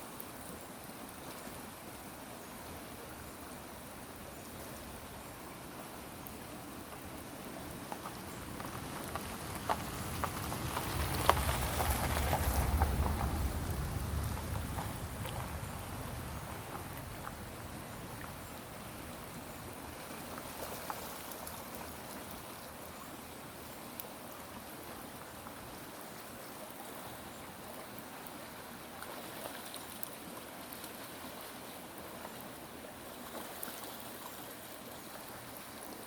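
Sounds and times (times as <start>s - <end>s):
running water: 0.0s - 36.0s.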